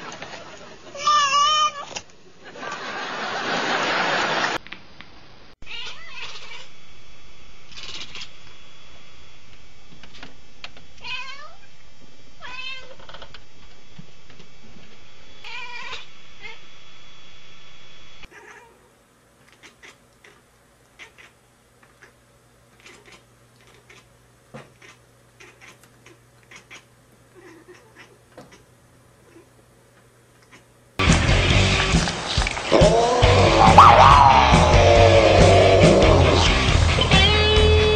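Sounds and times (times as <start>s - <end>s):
cat yowling: 1.0s - 1.9s, 5.6s - 6.7s, 11.0s - 11.6s, 12.4s - 13.0s, 15.4s - 16.6s, 18.3s - 18.8s, 32.7s - 36.6s.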